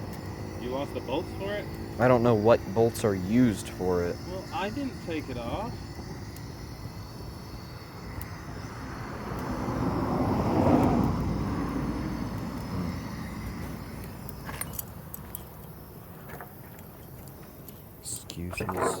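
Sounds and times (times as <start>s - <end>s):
vehicle passing by: 8.7s - 14.0s.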